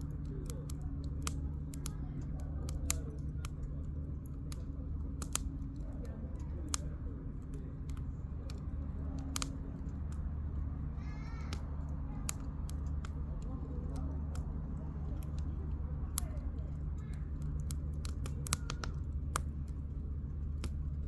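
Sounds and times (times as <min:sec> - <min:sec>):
campfire crackling and popping: 0:00.0 - 0:21.0
steady low hum: 0:00.0 - 0:21.0.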